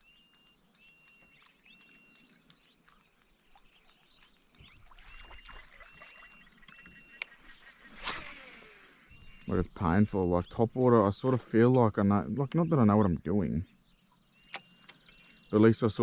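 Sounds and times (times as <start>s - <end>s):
click: 0.0s - 4.7s
high insect drone: 0.8s - 16.0s.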